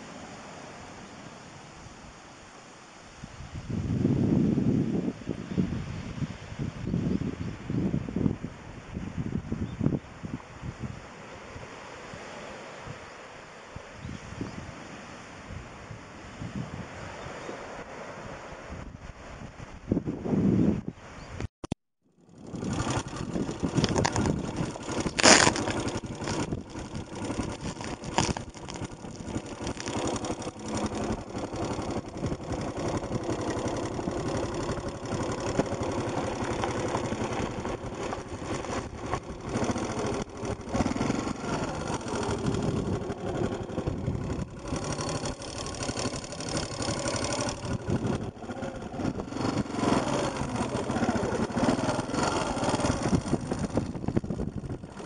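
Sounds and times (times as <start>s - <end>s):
motorcycle engine running: 22.1s - 55.0s.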